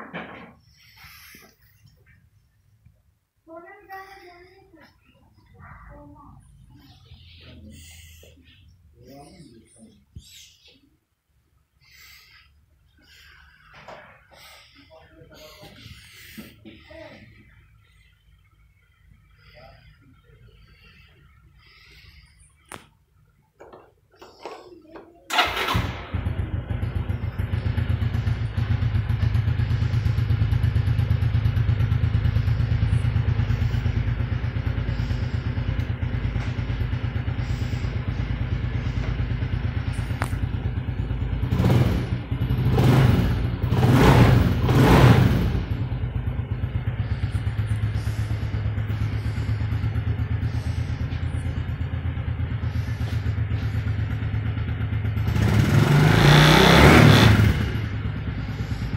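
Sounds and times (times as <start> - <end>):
engine idling and revving: 13.0 - 18.1, 25.3 - 58.9.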